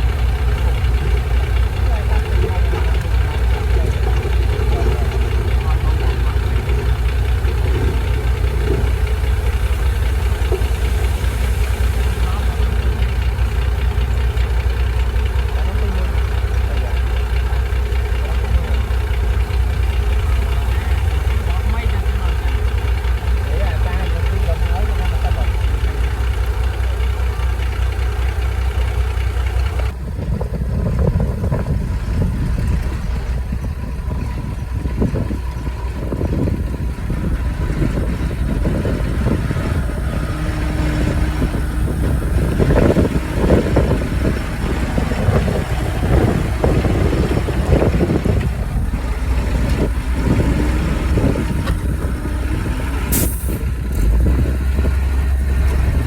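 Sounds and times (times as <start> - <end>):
heavy vehicle engine running: 0.0 - 56.0
sharp hiss: 9.2 - 13.6.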